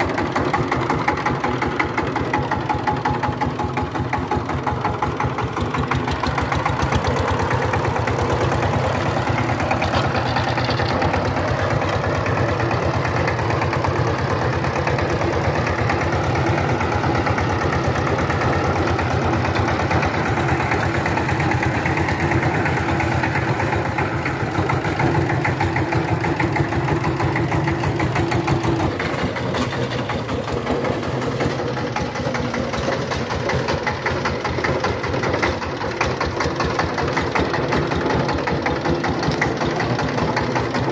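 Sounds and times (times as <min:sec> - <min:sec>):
diesel tiller engine knocking: 0:00.0 - 0:40.9.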